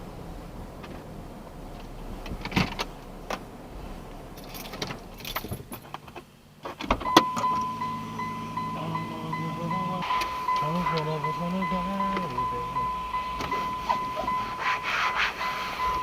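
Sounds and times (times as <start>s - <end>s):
keys jangling: 4.4s - 5.9s
music from car stereo: 7.0s - 16.0s.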